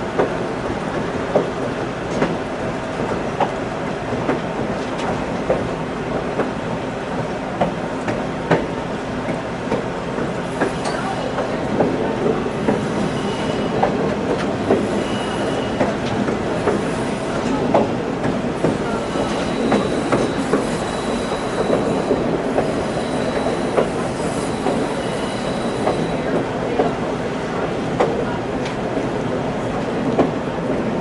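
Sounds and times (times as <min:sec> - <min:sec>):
train cars rumbling and rattling: 0:00.0 - 0:31.0
faint high wheel squeal: 0:12.8 - 0:13.9, 0:14.6 - 0:15.9, 0:18.8 - 0:26.3.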